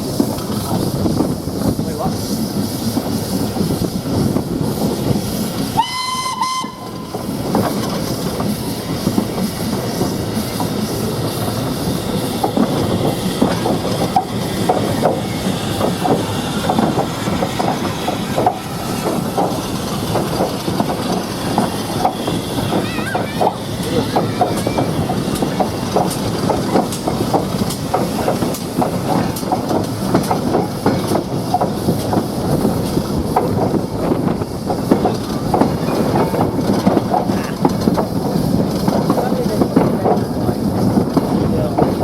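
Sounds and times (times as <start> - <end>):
steam train rumbling: 0.0 - 42.0
wheels clicking over rail joints: 0.0 - 42.0
steam whistle blast: 5.8 - 7.1.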